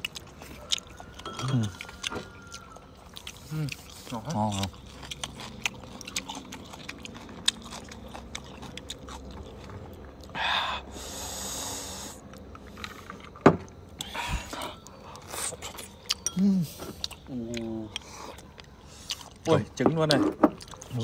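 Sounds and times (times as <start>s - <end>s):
person chewing food: 0.0s - 21.0s
breathy rush of air: 10.4s - 12.3s.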